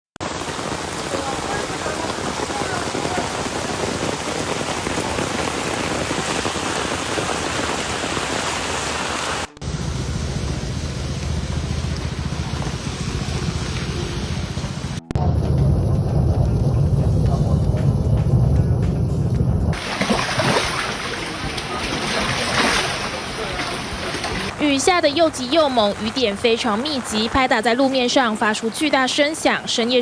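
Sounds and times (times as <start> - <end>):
torrential rain on hard surfaces: 0.2 - 30.0
deep rumbling rush: 9.6 - 24.6.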